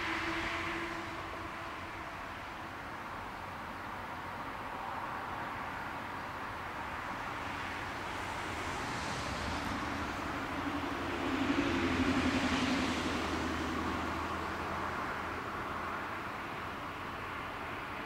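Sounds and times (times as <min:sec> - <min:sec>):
electric train passing: 0:00.0 - 0:03.4, 0:08.1 - 0:16.1.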